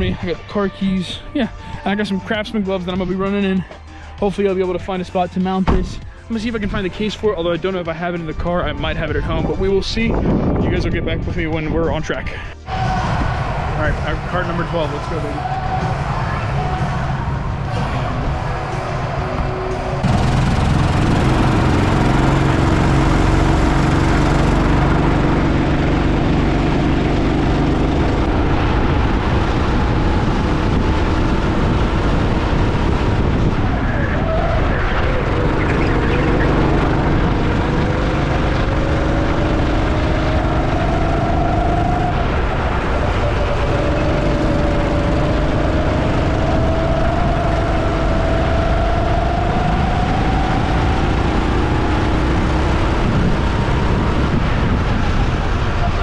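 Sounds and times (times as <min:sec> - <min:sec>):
heavy steady rush of noise: 0:12.7 - 0:34.2
go-kart engine accelerating: 0:14.8 - 0:56.0.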